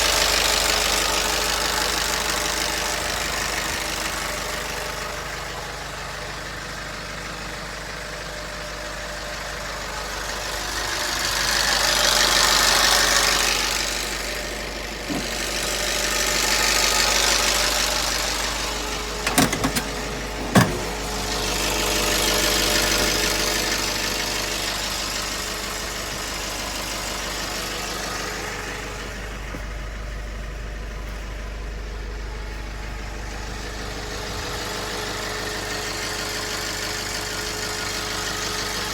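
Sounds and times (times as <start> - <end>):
truck engine revving: 15.1 - 24.0
sharp clicks or knocks: 19.2 - 21.0.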